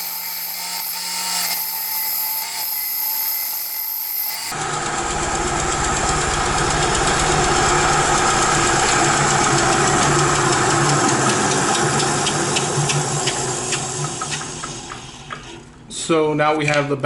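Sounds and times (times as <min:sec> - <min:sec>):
bandsaw cutting wood: 0:00.0 - 0:04.6.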